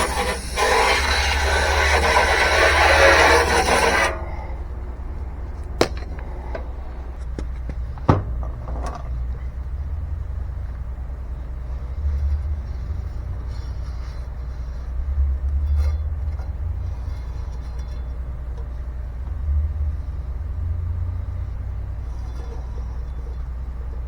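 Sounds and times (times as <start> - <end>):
low rumble: 3.5 - 13.5.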